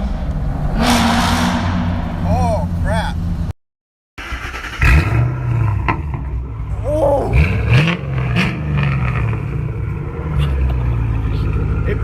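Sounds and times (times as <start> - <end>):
car engine revving: 4.2 - 12.0.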